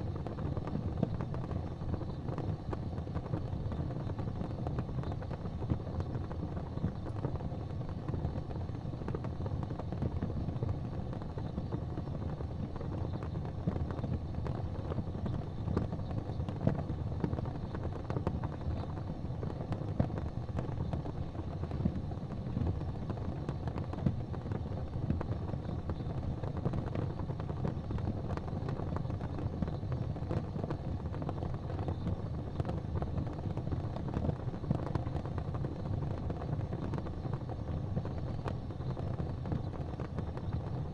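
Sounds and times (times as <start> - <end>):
fire crackling: 0.0 - 40.9
low rumble of flames: 0.0 - 40.9.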